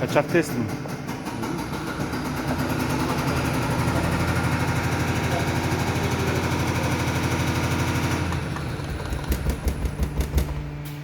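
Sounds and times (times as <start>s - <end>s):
test bench machine pulsing: 1.3s - 9.6s.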